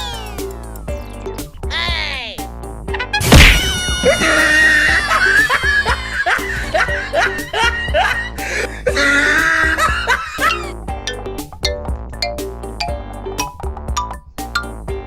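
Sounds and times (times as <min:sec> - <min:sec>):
background music: 0:00.0 - 0:15.0
comedic laughing sound effect: 0:03.8 - 0:10.8.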